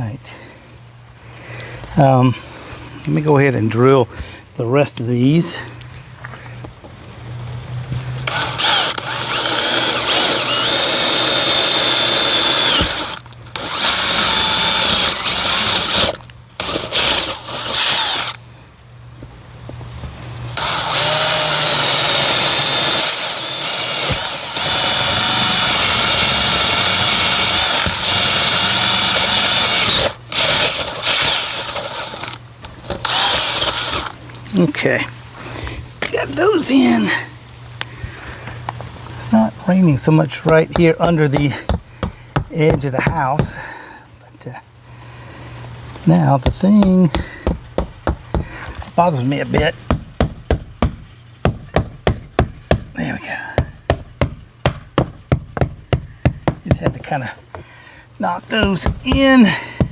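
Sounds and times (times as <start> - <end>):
power drill boring through wall: 8.2 - 18.4, 20.6 - 34.1.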